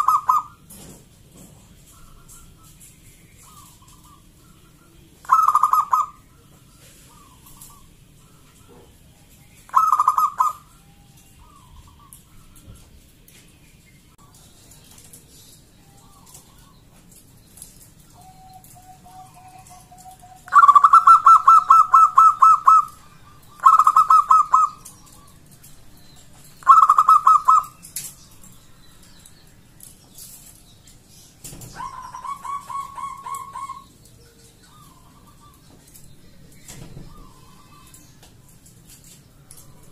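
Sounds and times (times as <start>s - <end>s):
dove cooing: 0.0s - 0.7s, 1.8s - 13.0s, 18.0s - 25.5s, 26.6s - 28.5s, 31.5s - 36.0s, 36.7s - 38.2s.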